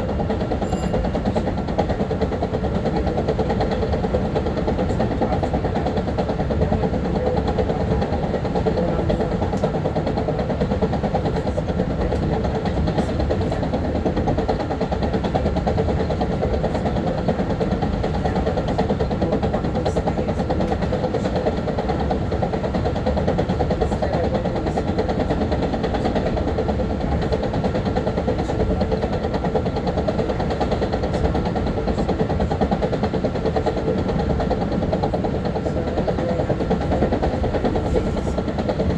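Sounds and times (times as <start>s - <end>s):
electric railcar rumble: 0.0s - 38.9s.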